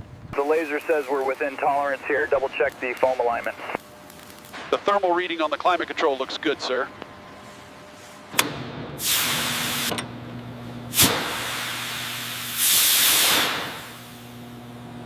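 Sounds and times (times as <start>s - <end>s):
low mechanical hum: 0.0s - 15.0s
pressurised hissing spray: 9.0s - 9.9s, 10.9s - 14.3s.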